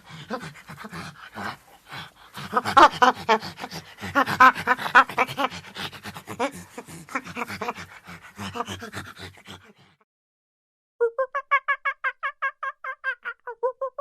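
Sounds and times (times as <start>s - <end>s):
animal panting: 0.0s - 10.0s.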